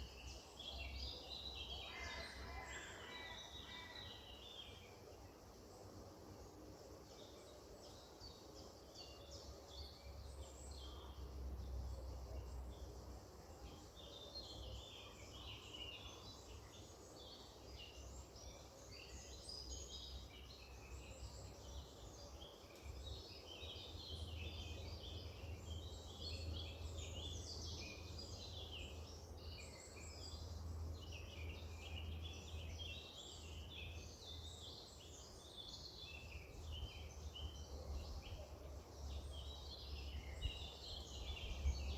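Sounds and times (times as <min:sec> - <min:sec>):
small birds chirping: 0:13.7 - 0:41.9.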